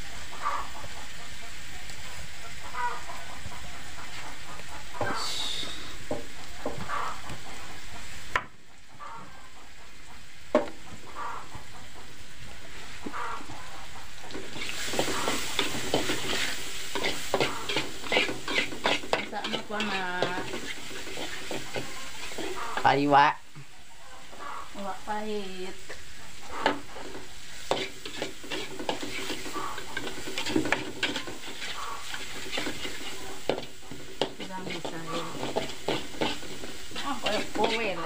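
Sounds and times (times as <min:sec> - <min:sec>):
paste sizzling in a wok: 0:00.0 - 0:38.0
metal spatula scraping a wok: 0:14.3 - 0:23.1, 0:26.3 - 0:38.0.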